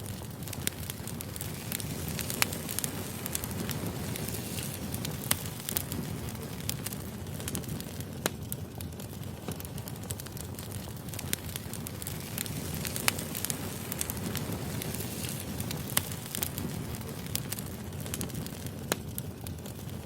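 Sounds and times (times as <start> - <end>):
fire flames rumbling: 0.0 - 20.0
logs crackling and popping: 0.0 - 20.0.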